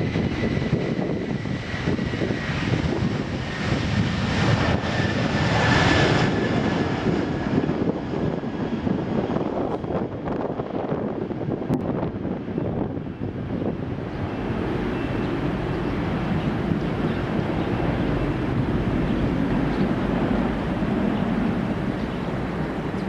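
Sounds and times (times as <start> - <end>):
jet engines roaring: 0.0 - 23.0
faint high engine whine: 13.9 - 23.0.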